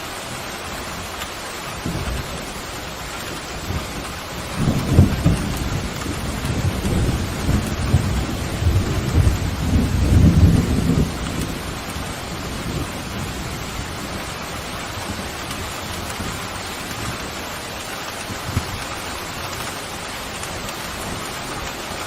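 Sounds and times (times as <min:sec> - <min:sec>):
heavy rain: 0:00.0 - 0:22.0
thunder rumbling: 0:00.7 - 0:19.6.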